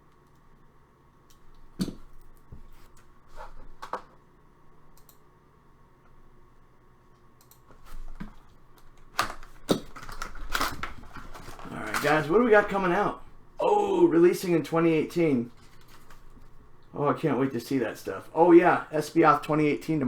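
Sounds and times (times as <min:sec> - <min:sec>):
packs rustling: 0:07.8 - 0:13.1, 0:15.5 - 0:16.6.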